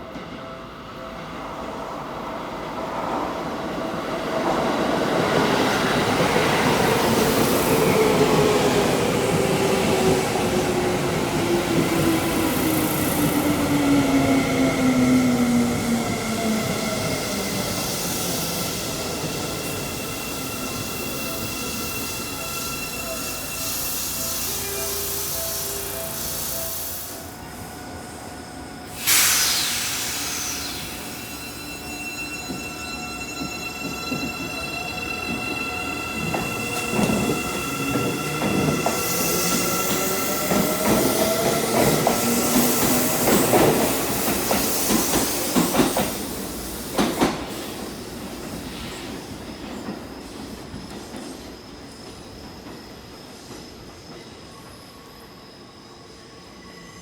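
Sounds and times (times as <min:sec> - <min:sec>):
train running noise: 0:04.3 - 0:54.2
loud hiss of air: 0:17.2 - 0:31.8, 0:37.8 - 0:49.4.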